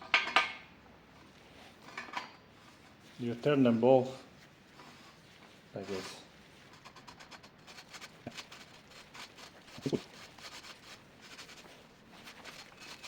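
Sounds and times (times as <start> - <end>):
thread-chasing tool scraping metal: 12.4 - 13.0.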